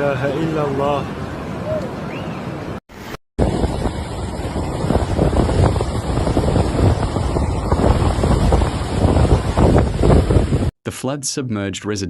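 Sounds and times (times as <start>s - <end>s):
floodwater rushing: 3.0s - 10.7s
wind buffeting microphone: 3.4s - 10.7s.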